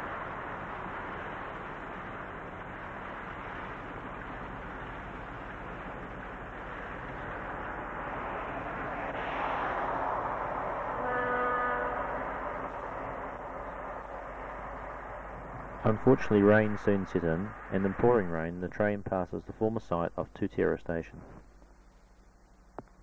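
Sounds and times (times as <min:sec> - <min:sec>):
freight train rushing past: 0:00.0 - 0:20.0
locomotive horn: 0:10.9 - 0:12.8.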